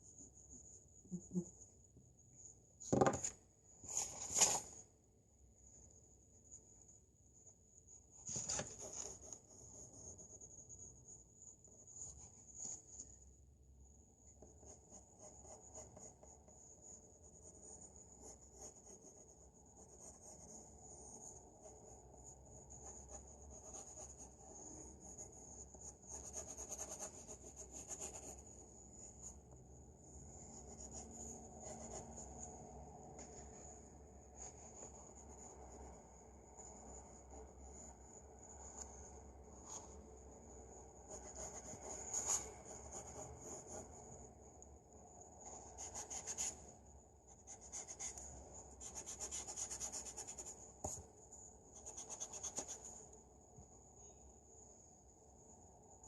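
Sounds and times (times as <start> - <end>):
pencil scratching on paper: 8.2 - 13.1, 14.4 - 29.4, 30.0 - 32.5, 41.0 - 44.3, 45.4 - 46.7, 47.3 - 51.1, 51.8 - 53.0.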